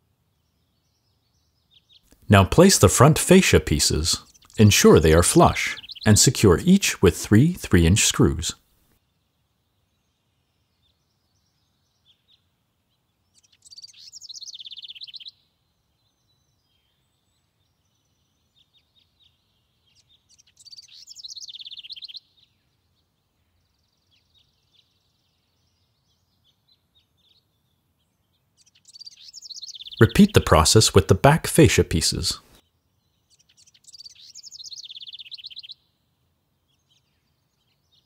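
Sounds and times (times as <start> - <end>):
songbird trilling: 4.2 - 6.1, 13.4 - 15.4, 19.9 - 22.3, 28.6 - 30.1, 33.3 - 35.8
faint bird chirps: 9.0 - 30.1, 32.5 - 38.0.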